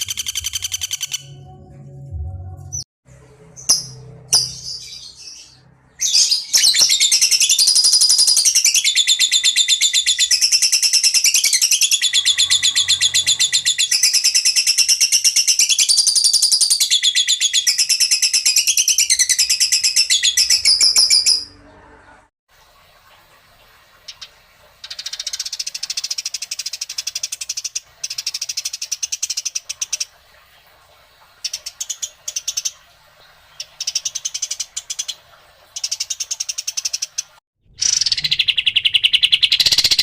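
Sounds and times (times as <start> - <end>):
songbird rapid trilled song: 0.0 - 1.4, 35.8 - 40.0.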